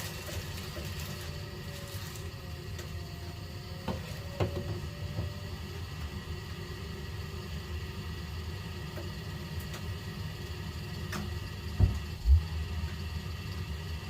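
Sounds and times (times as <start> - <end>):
gas boiler humming: 0.0 - 14.0
boiler knocks: 11.7 - 12.5.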